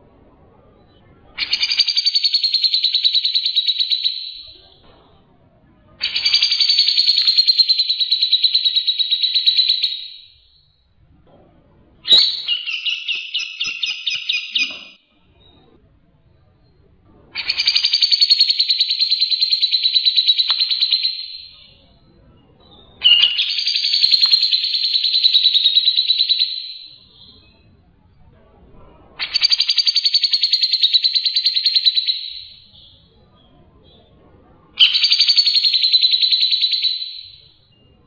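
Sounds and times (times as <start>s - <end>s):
songbird trilling: 6.0s - 10.3s, 12.1s - 15.0s, 17.4s - 21.8s, 23.0s - 27.3s, 34.8s - 37.4s.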